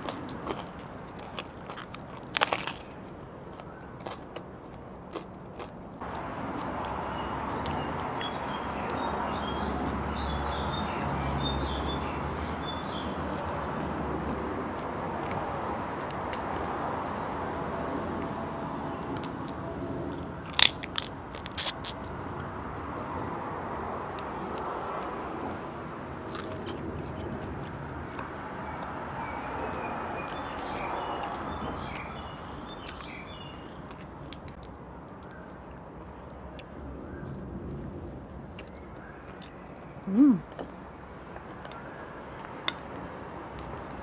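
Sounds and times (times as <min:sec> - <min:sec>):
person chewing food: 0:00.0 - 0:08.4, 0:26.2 - 0:29.0, 0:30.1 - 0:36.8.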